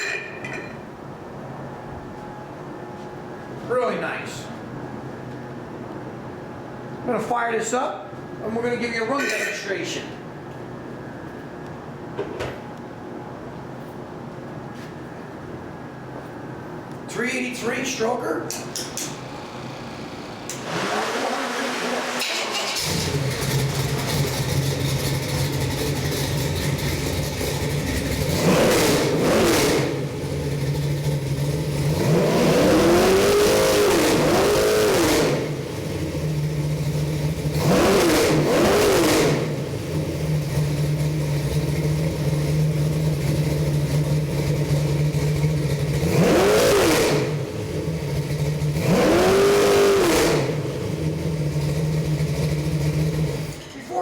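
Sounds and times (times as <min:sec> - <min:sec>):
engine idling: 0:18.6 - 0:33.0, 0:39.5 - 0:46.2, 0:47.2 - 0:49.0, 0:50.5 - 0:53.7
engine revving: 0:19.0 - 0:53.6.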